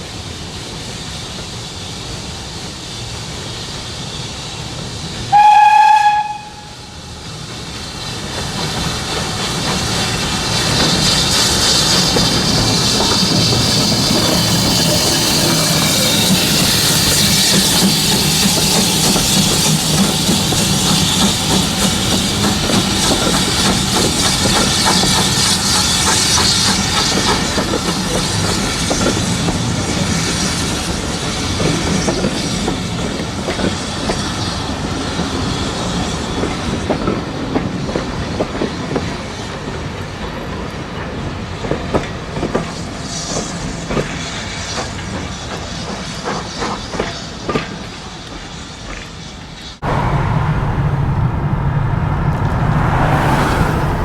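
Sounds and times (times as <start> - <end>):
train wheels clattering over rail joints: 7.4 - 49.2.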